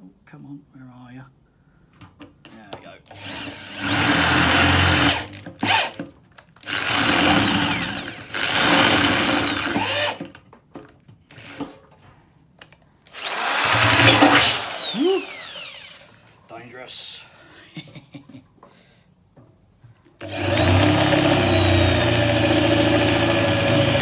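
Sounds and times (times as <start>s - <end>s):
power drill whining: 3.1s - 6.0s, 6.6s - 10.3s, 11.3s - 11.9s, 13.1s - 16.3s, 20.2s - 24.0s.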